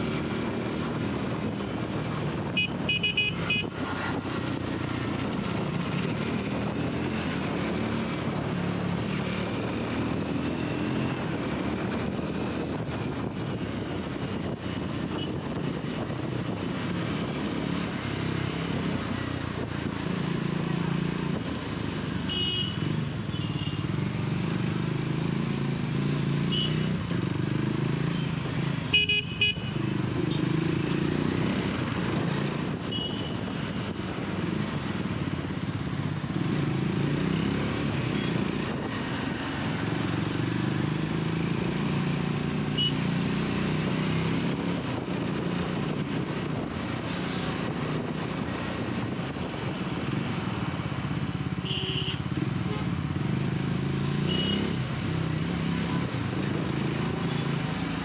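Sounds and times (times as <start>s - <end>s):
vehicle horns tooting: 2.6s - 3.7s, 22.3s - 23.8s, 26.5s - 26.9s, 28.9s - 29.8s, 51.6s - 52.8s, 54.2s - 54.8s.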